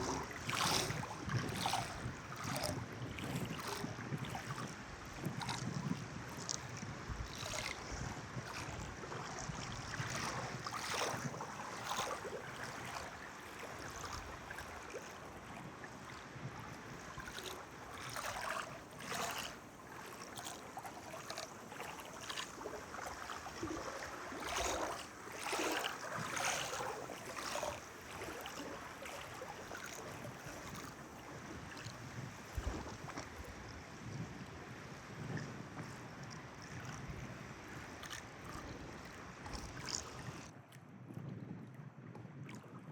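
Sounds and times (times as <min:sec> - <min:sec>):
wind noise on microphone: 0:00.0 - 0:13.1, 0:30.1 - 0:42.9
water lapping and splashing: 0:00.0 - 0:42.9.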